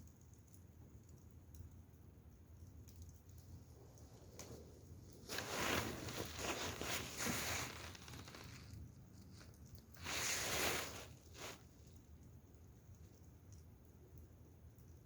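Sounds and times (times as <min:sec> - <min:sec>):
rustling handling noise: 0:04.1 - 0:12.0.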